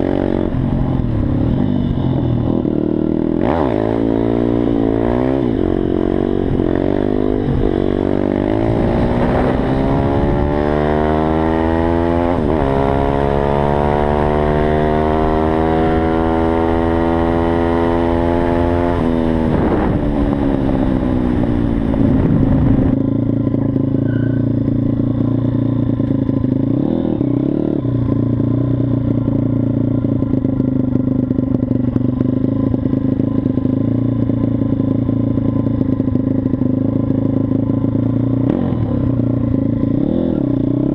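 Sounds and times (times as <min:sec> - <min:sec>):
motorbike engine accelerating: 0:00.0 - 0:40.9.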